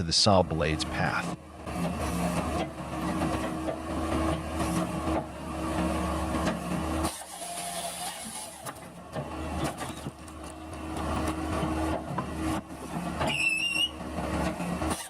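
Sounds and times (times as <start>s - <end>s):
firewood processor engine running: 0.0s - 15.0s
wavering high squeal: 13.3s - 14.0s.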